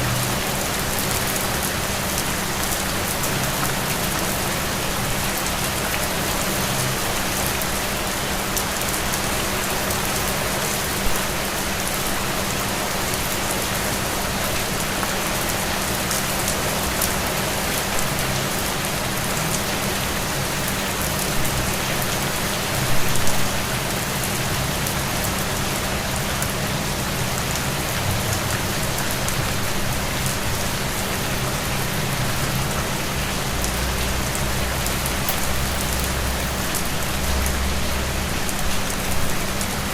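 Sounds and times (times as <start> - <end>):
steady rain falling: 0.0 - 25.2.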